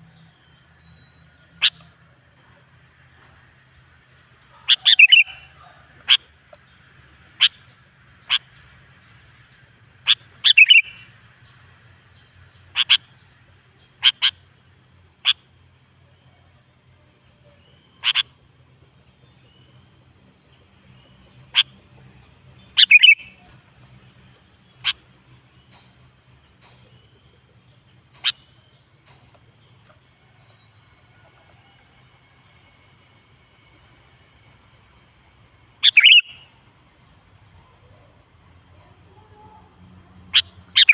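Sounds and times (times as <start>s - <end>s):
bird calling sharp notes: 22.8s - 23.5s, 35.8s - 36.4s.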